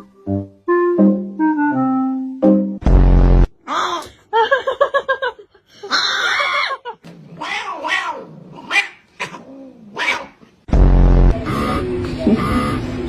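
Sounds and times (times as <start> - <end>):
loud low buzz: 2.8 - 3.5, 10.7 - 13.0
cat meowing: 7.4 - 9.0.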